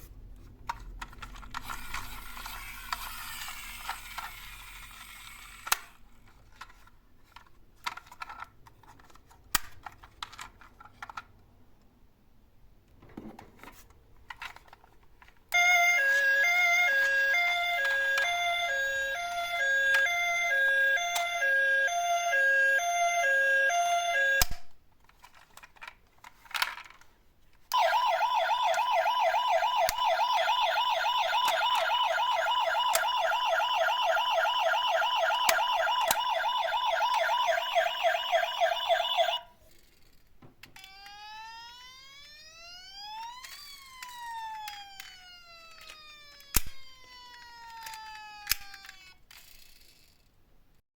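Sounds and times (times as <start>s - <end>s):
electronic siren wailing: 15.6s - 24.6s, 27.8s - 39.5s, 40.8s - 49.2s.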